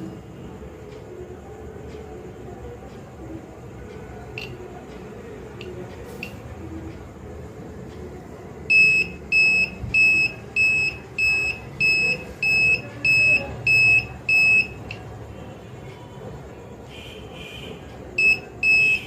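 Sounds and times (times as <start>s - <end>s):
alarm buzzer beeping: 8.7s - 15.0s, 18.2s - 19.0s.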